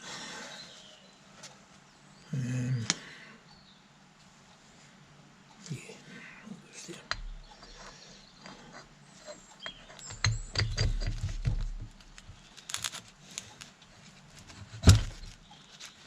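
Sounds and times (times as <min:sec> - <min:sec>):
metal parts and tools clicking: 0:07.0 - 0:16.0.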